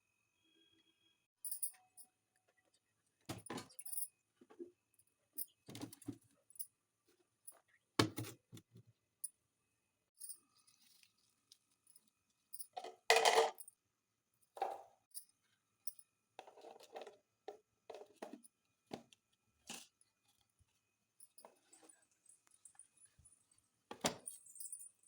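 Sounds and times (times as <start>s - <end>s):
containers knocking and clinking: 12.8s - 13.6s.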